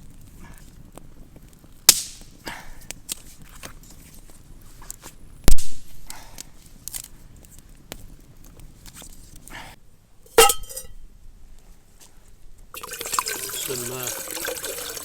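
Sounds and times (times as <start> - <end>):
sharp metallic clank: 10.3 - 11.0
cookware rustling and clicking: 10.4 - 10.9.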